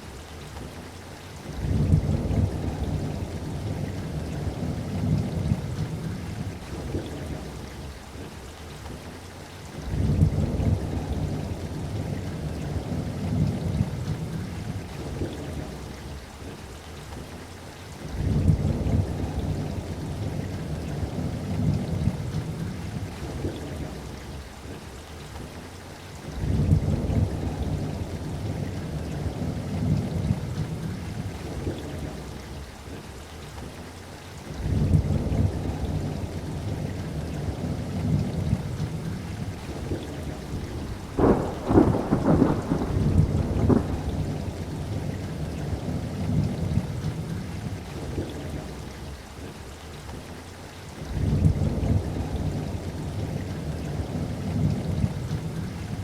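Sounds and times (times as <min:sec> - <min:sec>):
steady rainfall: 0:00.0 - 0:56.0
rolling thunder: 0:34.6 - 0:48.9, 0:51.1 - 0:56.0.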